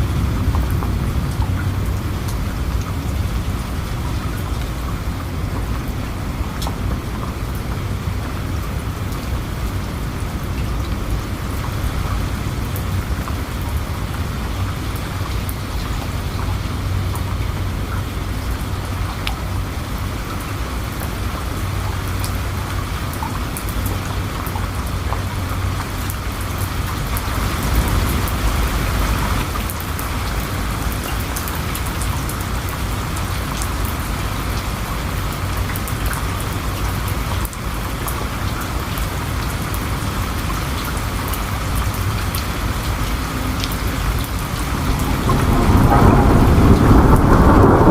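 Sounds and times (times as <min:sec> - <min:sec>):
raindrop ticks: 0:00.0 - 0:09.5, 0:10.4 - 0:47.9
steady rainfall: 0:00.0 - 0:47.9
deep rumble: 0:42.4 - 0:47.9.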